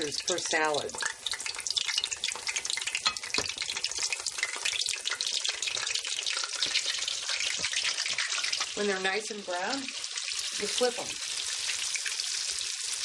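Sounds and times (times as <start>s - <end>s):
cheese sizzling in hot oil: 0.0s - 13.0s.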